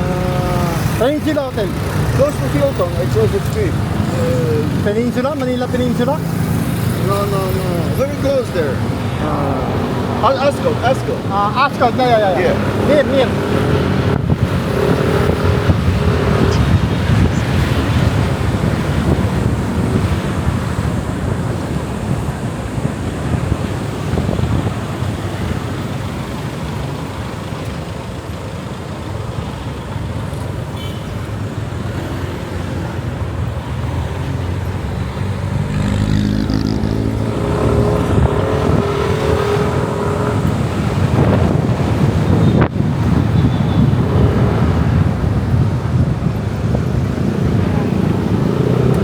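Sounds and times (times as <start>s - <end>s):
wind buffeting microphone: 0.0s - 30.3s, 34.6s - 49.0s
motorcycle engine rumble: 0.0s - 49.0s
road noise: 0.0s - 49.0s
vehicle engine speeding up: 1.7s - 23.0s, 33.6s - 43.2s, 43.9s - 49.0s.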